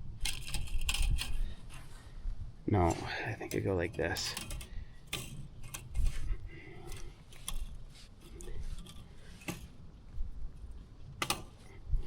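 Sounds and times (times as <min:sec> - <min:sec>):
wire tensioner clicking: 0:03.4 - 0:06.1.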